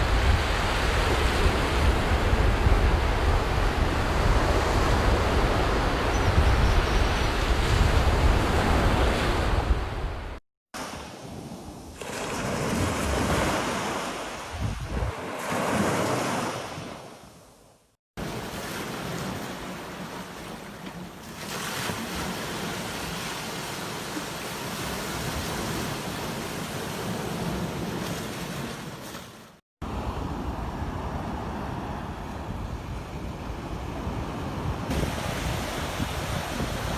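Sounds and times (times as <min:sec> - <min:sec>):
sea waves washing onto beach: 0:18.2 - 0:32.5, 0:33.5 - 0:36.9.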